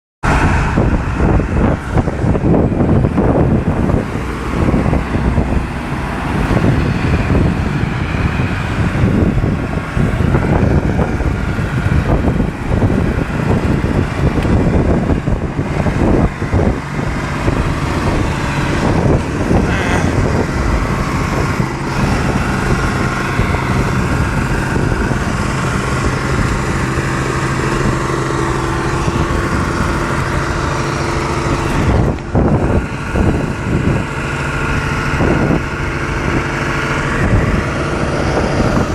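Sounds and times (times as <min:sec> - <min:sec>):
diesel truck engine racing: 0:00.2 - 0:38.9.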